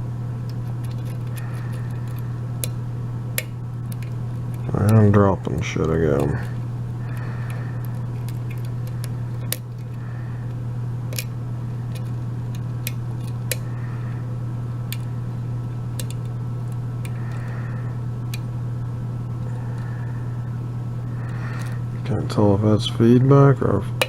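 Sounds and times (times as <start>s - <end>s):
steady low hum: 0.0s - 24.0s
lock pick metallic clicks: 16.0s - 16.3s.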